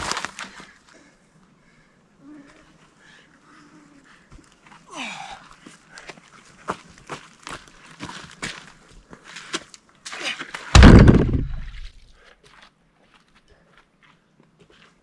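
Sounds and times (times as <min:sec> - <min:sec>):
loud heavy thump: 0:10.8 - 0:11.9
footsteps and light taps: 0:12.4 - 0:15.0.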